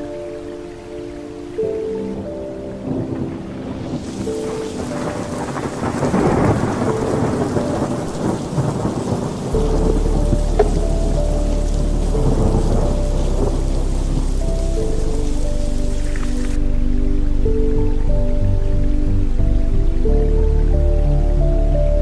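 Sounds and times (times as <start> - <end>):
deep low drone: 0.0 - 22.0
soft music with long held notes: 0.0 - 22.0
steady rain: 0.0 - 22.0
rolling thunder: 2.7 - 16.4.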